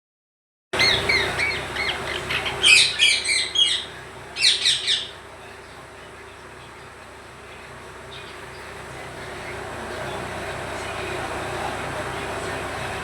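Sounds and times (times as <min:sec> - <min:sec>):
parrot chirps: 0:00.8 - 0:05.2
parrot squawking: 0:00.8 - 0:05.2.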